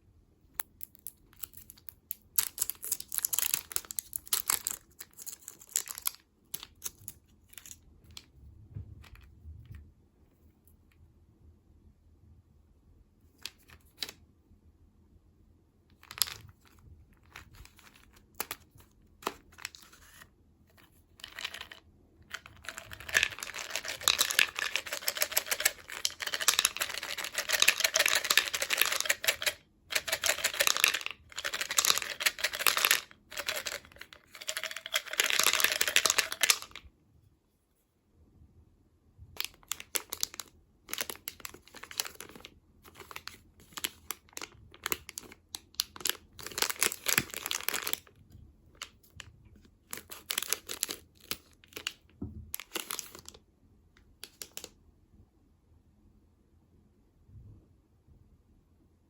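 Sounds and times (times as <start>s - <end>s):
snack packaging crinkling: 0.6s - 7.8s, 21.2s - 36.8s, 39.4s - 48.1s, 49.8s - 52.0s, 52.6s - 53.4s.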